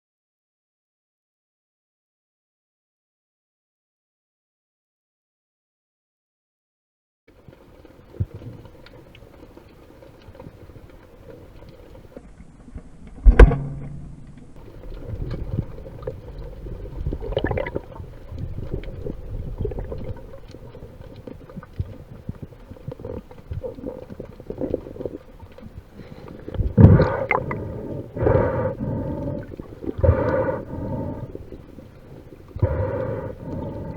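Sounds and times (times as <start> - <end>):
water churning and rumbling: 14.5 - 33.9.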